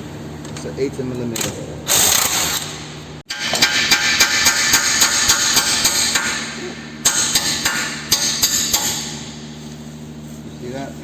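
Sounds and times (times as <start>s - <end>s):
hammer striking metal shaft: 3.3s - 9.5s.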